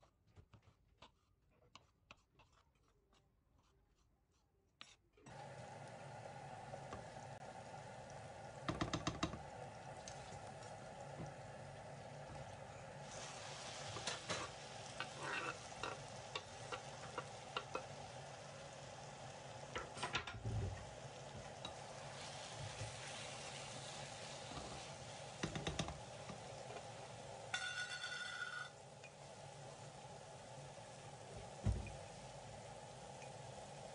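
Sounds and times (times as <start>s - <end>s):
food sizzling in a frying pan: 5.3s - 33.9s
utensil knocking against pan: 8.6s - 9.4s, 25.4s - 26.0s.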